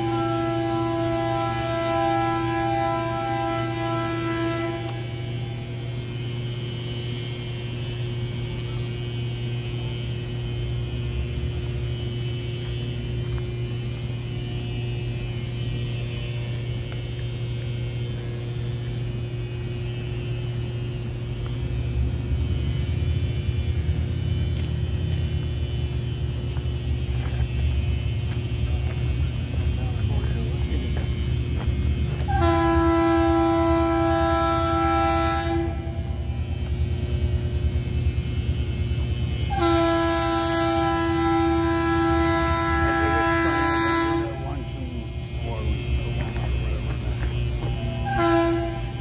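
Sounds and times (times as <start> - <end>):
diesel locomotive engines rumbling: 0.0 - 49.0.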